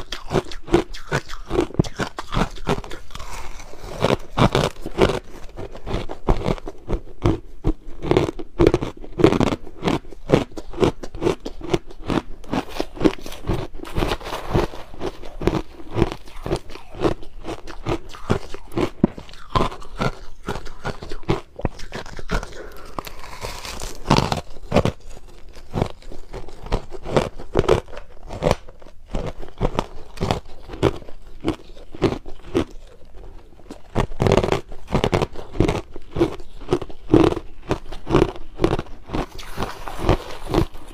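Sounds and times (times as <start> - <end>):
crushed ice crunching: 2.4 - 6.6, 12.1 - 28.5, 33.9 - 40.9.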